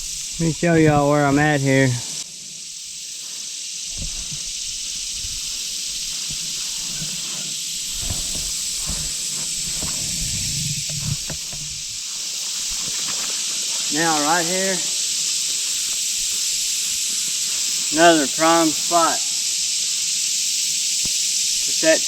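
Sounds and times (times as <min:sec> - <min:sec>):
footfalls rustling through weeds: 0:00.0 - 0:14.0
insect chorus hissing: 0:00.0 - 0:22.0.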